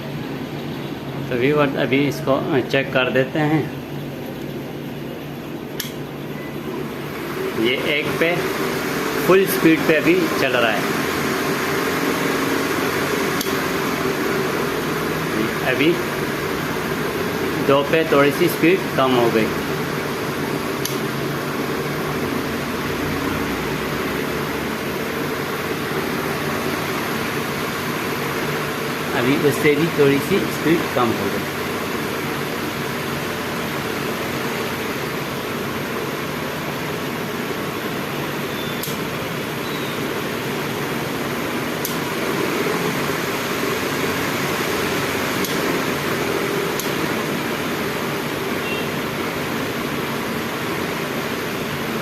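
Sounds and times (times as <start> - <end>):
fan air rush and motor hum: 0.0 - 52.0
short click: 5.8 - 6.0, 38.7 - 39.0.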